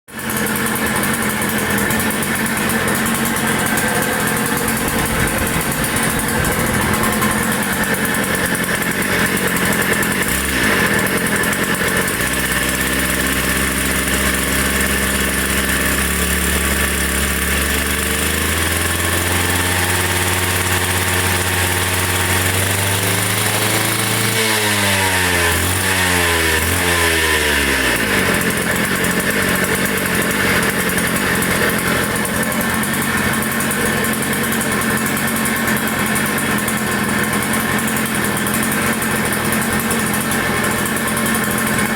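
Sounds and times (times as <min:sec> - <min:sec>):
power cutter engine running: 0:00.1 - 0:41.9
low drone gliding down: 0:03.4 - 0:08.9.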